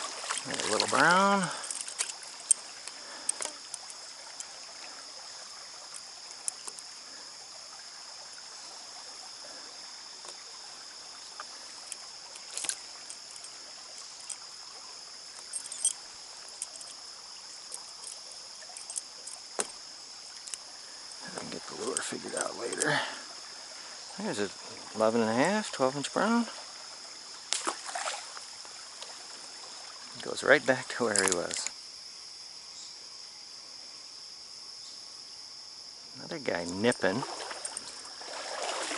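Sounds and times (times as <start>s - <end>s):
high-pitched hiss: 0.0s - 38.9s
stream water running: 0.0s - 38.9s.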